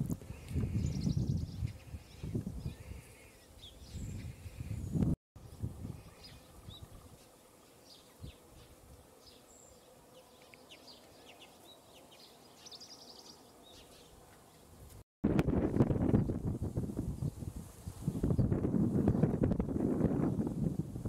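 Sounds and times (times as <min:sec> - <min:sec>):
wind rumble on microphone: 0:00.0 - 0:07.2, 0:14.8 - 0:21.0
small birds chirping: 0:00.2 - 0:14.9.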